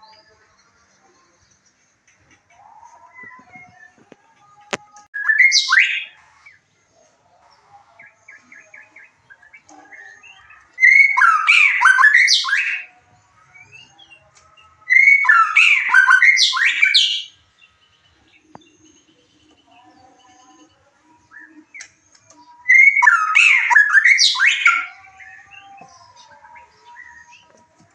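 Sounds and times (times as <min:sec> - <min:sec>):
bird singing whistles and trills: 0:05.2 - 0:06.2, 0:08.3 - 0:12.9, 0:14.8 - 0:17.4, 0:21.2 - 0:27.5.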